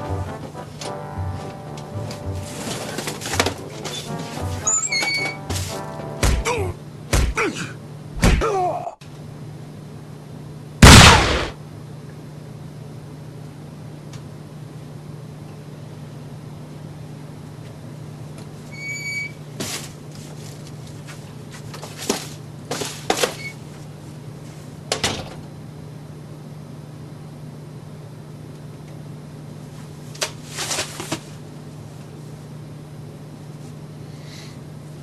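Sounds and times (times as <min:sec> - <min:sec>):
low hum: 0:00.0 - 0:07.0, 0:10.8 - 0:12.2
knocks and clatters: 0:02.7 - 0:04.2.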